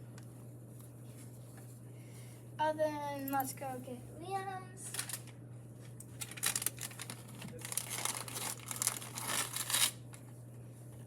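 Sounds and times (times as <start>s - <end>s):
packaging crinkling: 4.9s - 5.3s, 6.2s - 10.0s.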